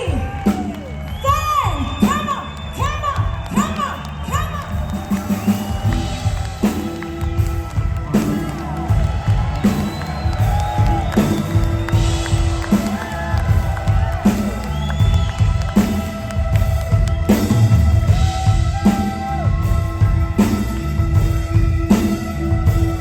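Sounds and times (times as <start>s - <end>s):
crowd cheering and whooping: 0.0s - 23.0s
drums and bass pounding: 0.0s - 23.0s
electric guitar: 4.7s - 23.0s.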